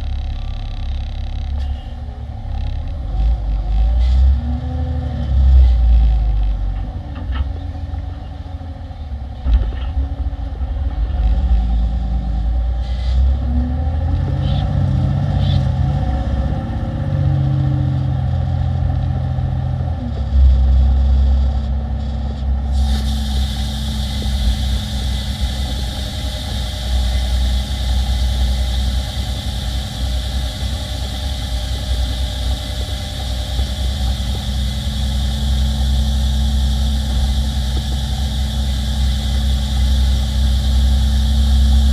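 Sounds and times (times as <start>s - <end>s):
heavy diesel truck engine: 0.0s - 41.9s
steady hiss: 22.7s - 41.9s.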